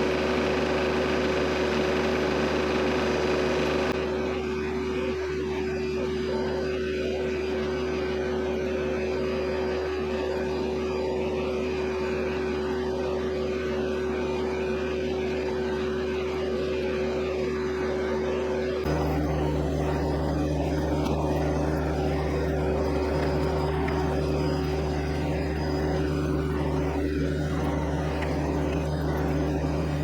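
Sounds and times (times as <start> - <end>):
tractor diesel engine running: 18.9 - 30.0.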